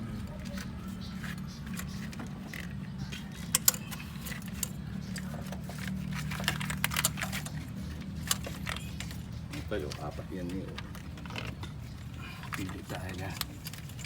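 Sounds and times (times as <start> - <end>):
car engine idling: 0.0 - 14.0
metallic clicks and clinks: 0.4 - 10.1.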